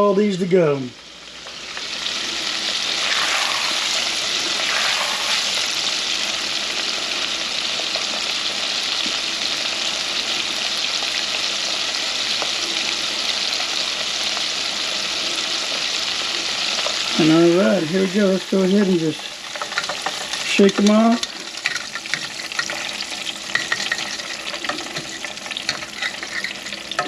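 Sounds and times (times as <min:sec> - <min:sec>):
shrimp sizzling in hot oil: 0:00.7 - 0:27.0.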